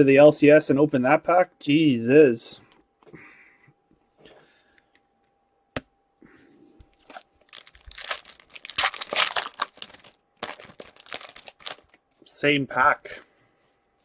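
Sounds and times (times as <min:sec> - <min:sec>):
foil wrapper crinkling: 0:07.0 - 0:12.0.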